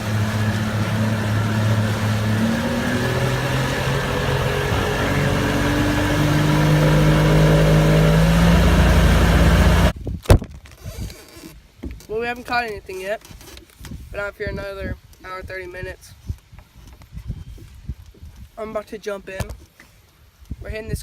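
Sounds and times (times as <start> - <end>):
boat motor running: 0.0 - 9.9
wind and water rushing: 0.0 - 10.2.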